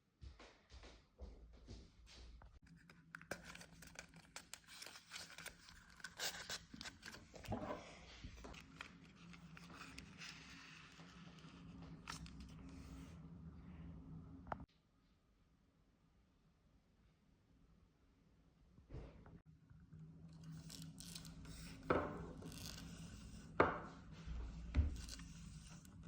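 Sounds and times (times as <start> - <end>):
faint steady hum: 7.4 - 18.7.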